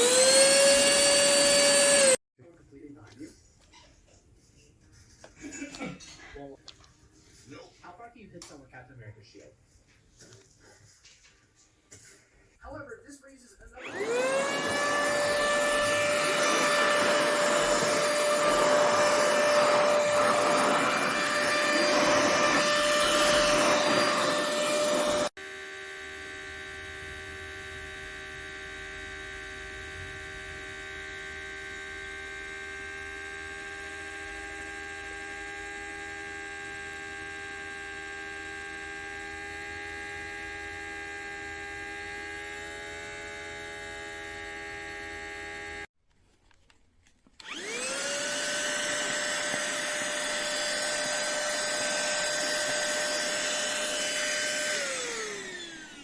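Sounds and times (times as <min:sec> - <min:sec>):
handheld vacuum cleaner whining: 0:00.0 - 0:02.2, 0:13.7 - 0:45.9, 0:47.2 - 0:56.0.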